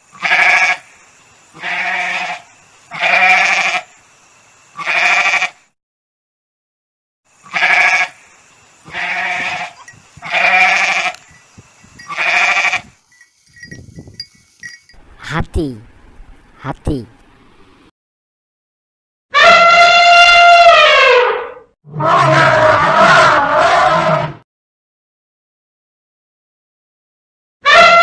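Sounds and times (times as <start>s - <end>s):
goat bleating: 0.1s - 0.8s, 1.6s - 3.8s, 4.8s - 5.6s, 7.4s - 8.2s, 8.9s - 11.3s, 12.0s - 13.0s.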